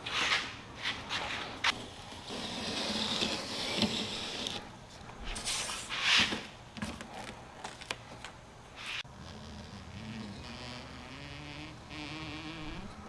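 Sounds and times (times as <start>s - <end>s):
rubber strip rustling and scraping: 0.0s - 9.1s.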